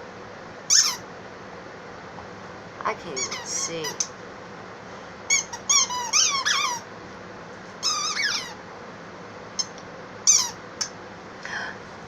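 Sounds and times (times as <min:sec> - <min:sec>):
small dog whining: 0:05.3 - 0:06.9, 0:07.8 - 0:08.6.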